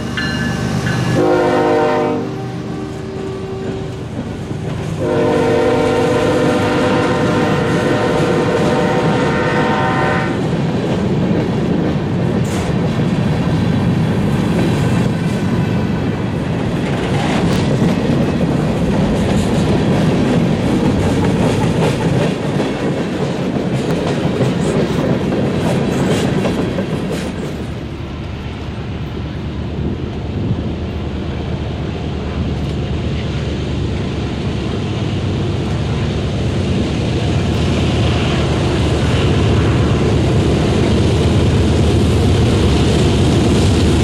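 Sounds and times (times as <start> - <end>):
clicks and clanks of train cars: 0.0 - 31.0, 31.9 - 33.4
freight train rumbling past: 0.0 - 44.0
locomotive horn: 0.7 - 4.1, 5.0 - 10.4.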